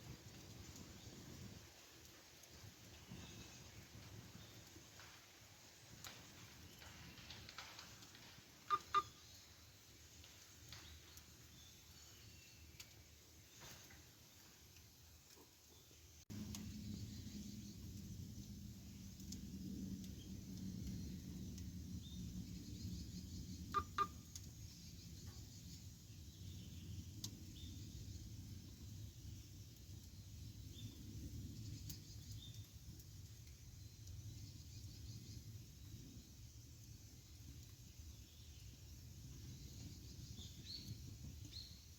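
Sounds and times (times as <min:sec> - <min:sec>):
sharp pops from fire: 0:00.0 - 0:15.5
campfire burning: 0:00.0 - 0:41.9
fire crackling: 0:00.0 - 0:41.9
faint high chirps: 0:08.7 - 0:09.4.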